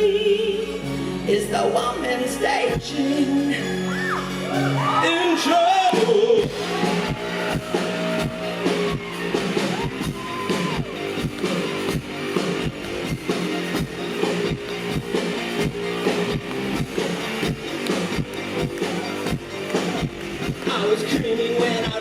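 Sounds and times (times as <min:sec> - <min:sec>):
electric guitar: 0:00.0 - 0:22.0
drum kit: 0:04.4 - 0:22.0.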